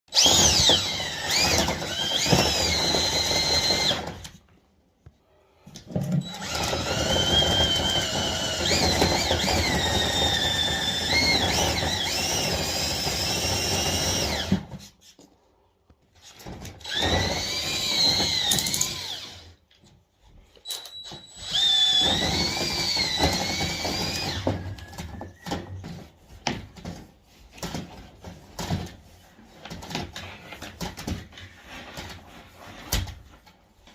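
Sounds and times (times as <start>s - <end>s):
power drill spinning a brush: 0.1s - 4.4s, 6.2s - 15.3s, 16.2s - 19.6s, 21.1s - 26.5s, 27.2s - 33.4s.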